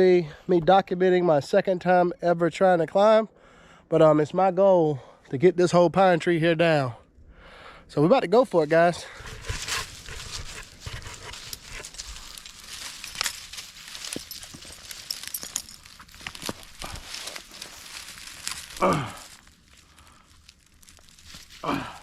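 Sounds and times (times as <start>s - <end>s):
rustling and scraping: 8.7s - 22.0s.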